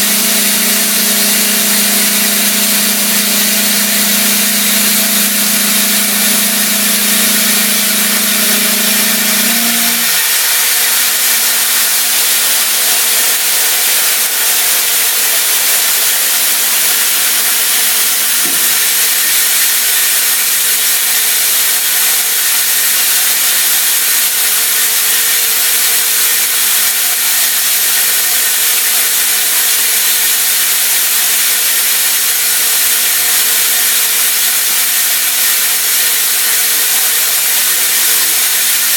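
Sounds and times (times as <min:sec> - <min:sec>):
milling machine hum: 0:00.0 - 0:21.6
coolant spray and cutting hiss: 0:00.0 - 0:38.9.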